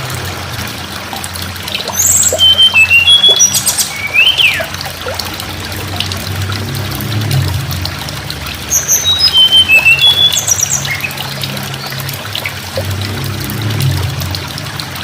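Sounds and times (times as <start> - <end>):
trickling water: 0.0 - 15.0
bird singing high notes and trill: 1.7 - 4.8, 8.6 - 12.6.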